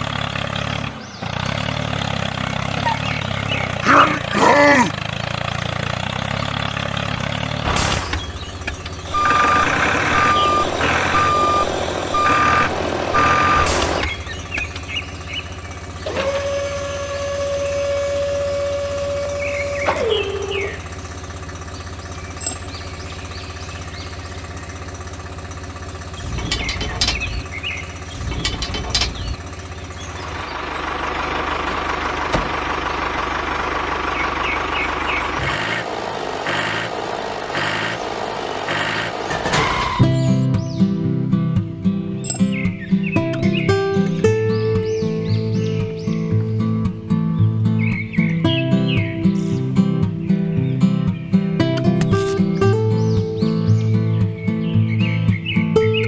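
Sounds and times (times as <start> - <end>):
low engine hum: 0.0 - 56.0
reversing alarm beeping: 8.1 - 21.0
long tone sliding down: 9.0 - 14.8, 16.0 - 20.9.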